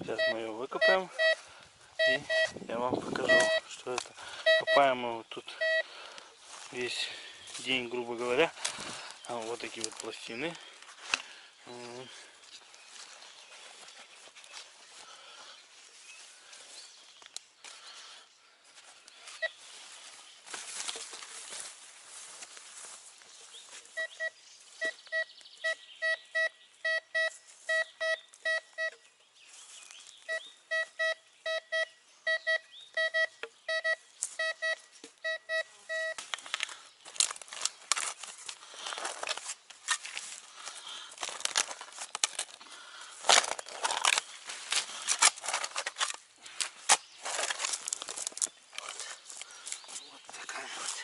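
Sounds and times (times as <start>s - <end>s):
metal detector beeping: 0.0s - 1.4s, 2.0s - 3.7s, 4.3s - 5.9s, 19.3s - 19.6s, 23.9s - 29.0s, 30.2s - 36.3s
digging into soil: 2.0s - 14.7s, 35.9s - 51.0s.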